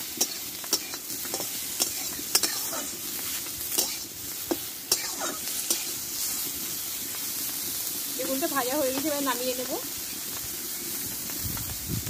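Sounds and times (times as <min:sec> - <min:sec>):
vegetables sizzling in hot oil: 0:00.0 - 0:12.0
spatula scraping and knocking pan: 0:00.2 - 0:03.0.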